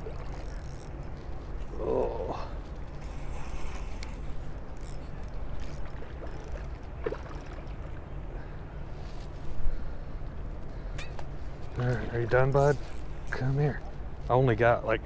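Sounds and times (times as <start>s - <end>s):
faint clicks: 3.7s - 4.2s.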